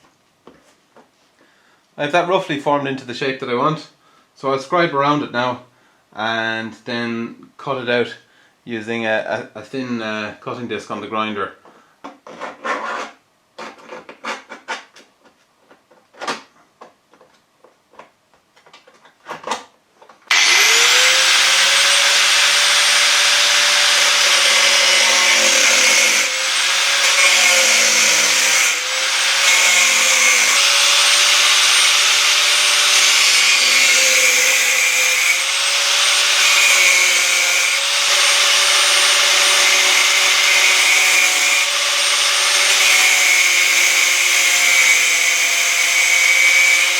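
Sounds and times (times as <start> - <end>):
angle grinder cutting sheet steel: 20.3 - 46.9.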